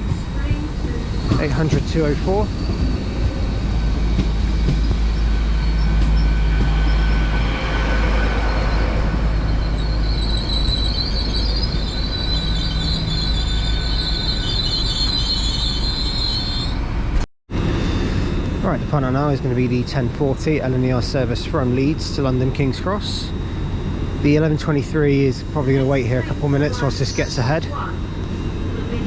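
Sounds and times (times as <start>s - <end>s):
wheels squealing: 0.0s - 17.2s, 24.5s - 29.0s
train rumbling past: 0.0s - 29.0s.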